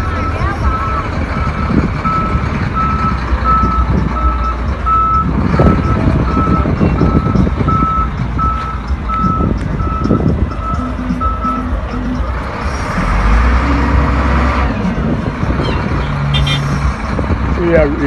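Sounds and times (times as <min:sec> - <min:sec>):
reversing alarm beeping: 0:00.0 - 0:12.2
diesel engine rumble: 0:00.0 - 0:18.0.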